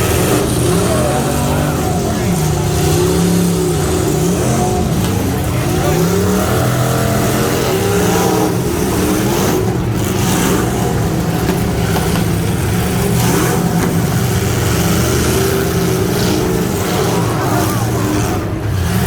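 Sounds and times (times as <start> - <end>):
pickup truck engine running hard: 0.0 - 19.0.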